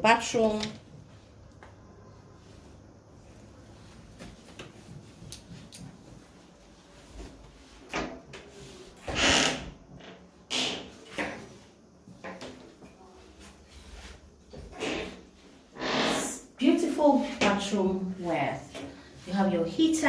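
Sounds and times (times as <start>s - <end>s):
door sliding scrapes: 15.8s - 16.4s.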